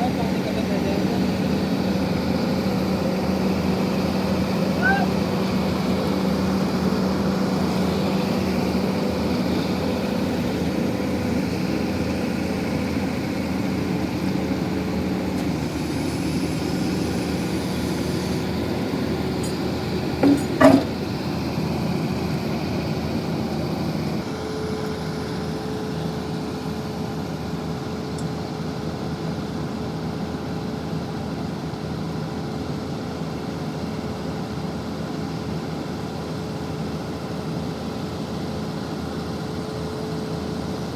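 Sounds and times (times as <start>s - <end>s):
drilling rig engine humming: 0.0s - 29.7s.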